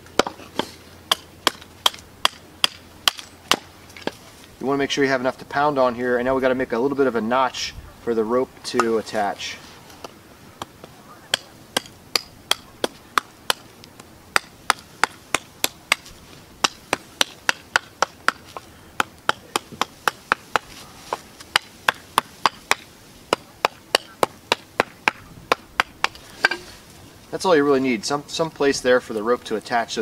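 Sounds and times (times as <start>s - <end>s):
hatchet chopping wood: 0.0s - 4.2s, 10.0s - 26.7s.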